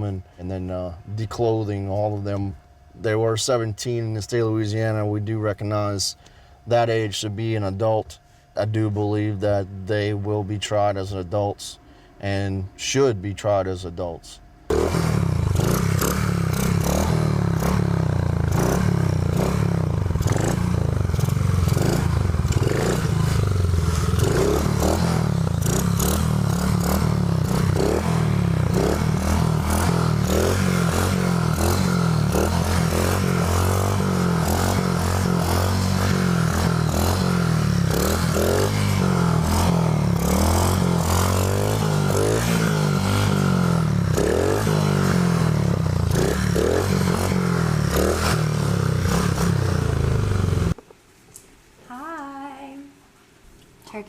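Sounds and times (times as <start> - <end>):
small motorbike engine revving: 14.7 - 50.8.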